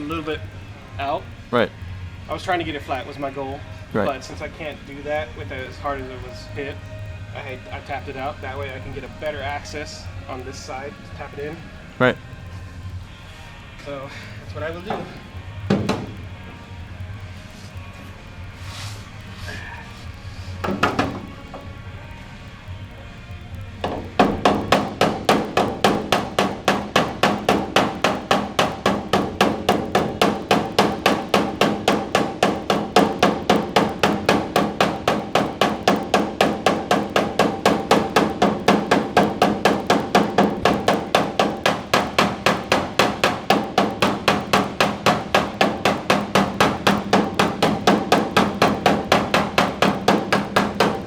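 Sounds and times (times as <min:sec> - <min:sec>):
hammer tapping on steel panel: 0:23.8 - 0:51.0.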